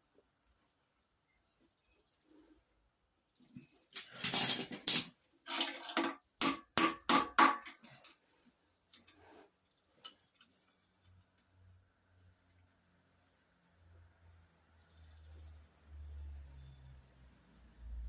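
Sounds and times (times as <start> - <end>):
sharp metallic knocks: 6.4 - 7.7.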